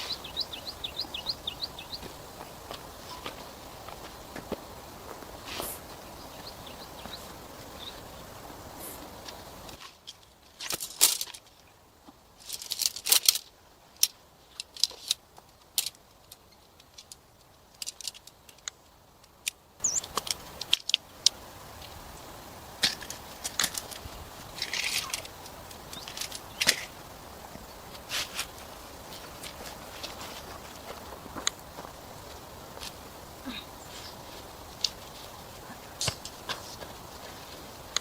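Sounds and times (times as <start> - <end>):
background hiss: 0.0 - 38.0.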